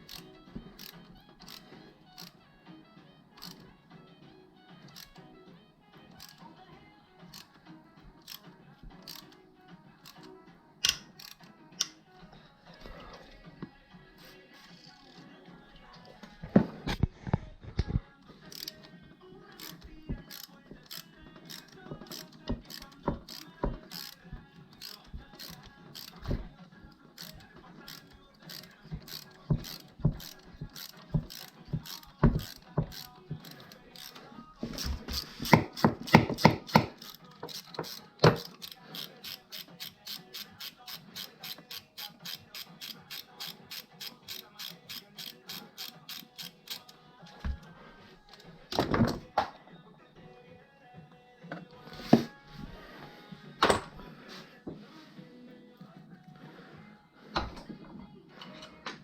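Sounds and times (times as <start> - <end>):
ratchet wrench clicking: 0.0 - 2.4, 3.4 - 3.6, 4.8 - 5.2, 6.2 - 6.4, 8.2 - 8.4, 9.0 - 9.4, 10.0 - 12.0, 18.5 - 18.9, 19.5 - 24.2, 24.8 - 26.3, 27.1 - 34.2, 34.8 - 47.0.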